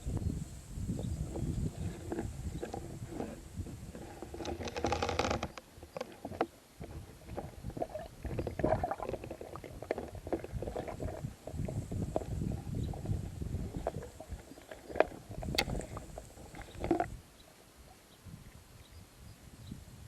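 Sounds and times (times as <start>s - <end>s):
muffled underwater rumble: 0.0s - 4.3s, 6.8s - 17.1s
underwater clicks and knocks: 14.8s - 17.1s.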